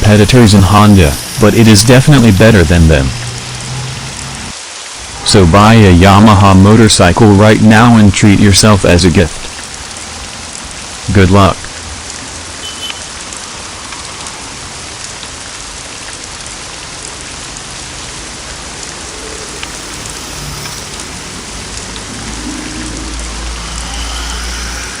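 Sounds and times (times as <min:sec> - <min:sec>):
rain falling: 0:00.0 - 0:25.0
low rumble: 0:19.3 - 0:25.0.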